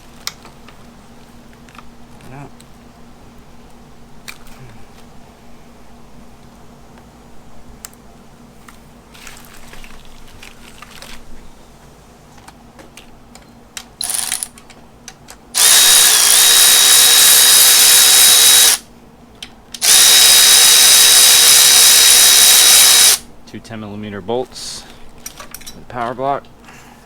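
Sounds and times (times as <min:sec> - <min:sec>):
parts clicking and rattling: 0:12.4 - 0:18.8, 0:25.2 - 0:26.2
cordless drill whining: 0:14.0 - 0:14.5, 0:15.6 - 0:18.8, 0:19.8 - 0:23.2.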